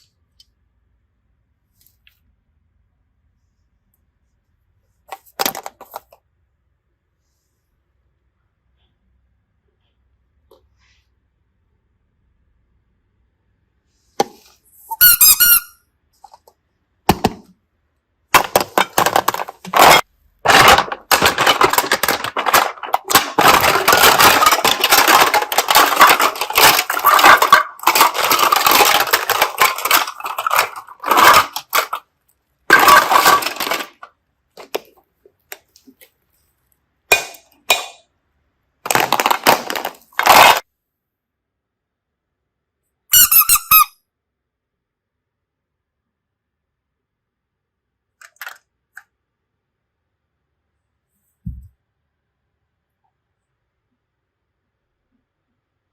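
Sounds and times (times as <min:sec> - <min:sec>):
slime squeaks: 0:43.1 - 0:43.9.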